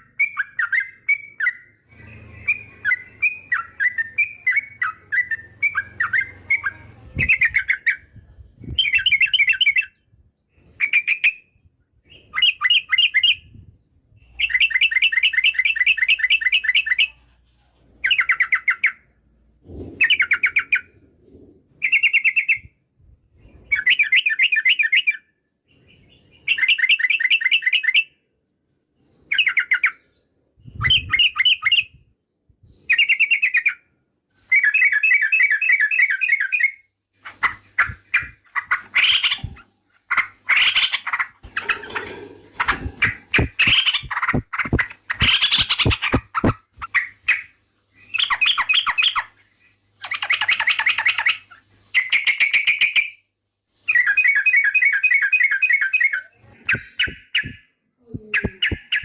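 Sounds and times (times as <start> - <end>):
bulbul singing: 53.9 - 59.0.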